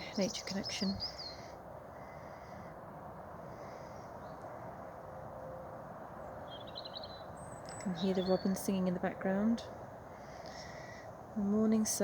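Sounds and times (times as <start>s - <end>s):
robin warbling song: 0.0s - 1.6s, 6.5s - 9.5s
woodland background hiss: 0.0s - 4.7s, 6.4s - 12.0s.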